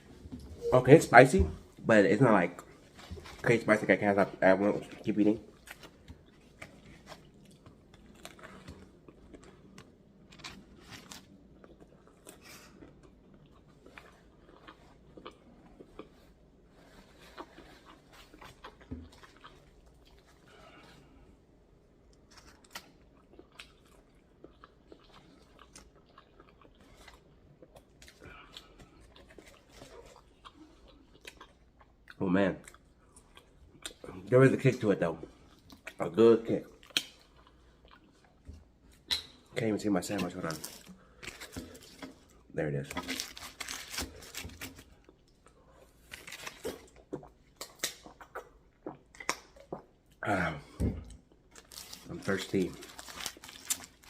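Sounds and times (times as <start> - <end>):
person chewing food: 4.8 - 34.2, 36.6 - 39.5, 40.1 - 54.0
mouth clicks and crunches: 35.6 - 38.3, 40.1 - 50.0, 51.1 - 54.0.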